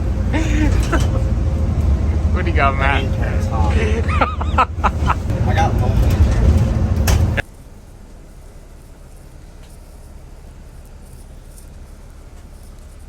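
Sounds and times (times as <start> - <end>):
loud noisy burst: 0.0 - 7.4
low rumble with hum: 0.0 - 13.0.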